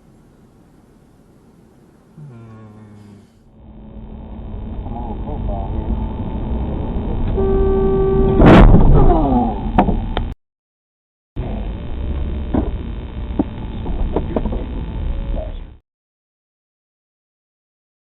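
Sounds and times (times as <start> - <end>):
car driving noise: 0.0 - 10.3, 11.4 - 15.8
steady pitched tone: 2.2 - 8.4.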